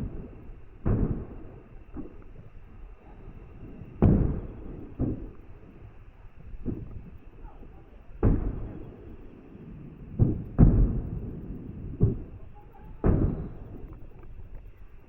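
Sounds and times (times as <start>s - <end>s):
fireworks booming: 0.0s - 14.9s.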